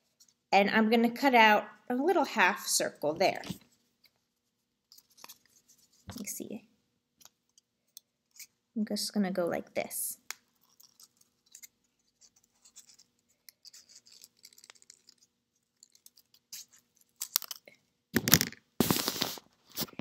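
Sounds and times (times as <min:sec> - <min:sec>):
paper handling noise: 0:10.7 - 0:17.6, 0:18.2 - 0:20.0.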